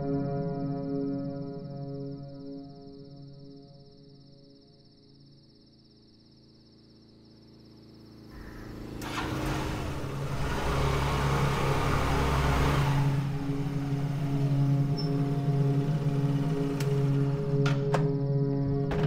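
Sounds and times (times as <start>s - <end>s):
faint crickets: 0.1s - 9.2s, 13.6s - 19.0s
low music drone: 7.7s - 19.0s
motor scooter engine: 8.3s - 17.9s.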